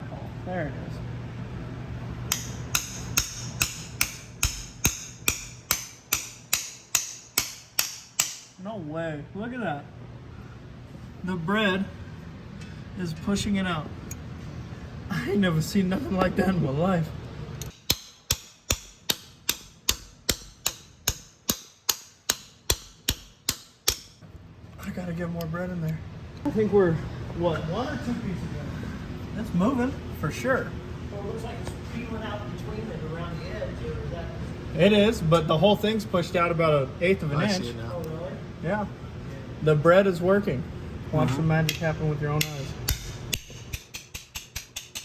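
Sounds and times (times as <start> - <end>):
hammer blows with metallic ring: 2.3 - 8.6.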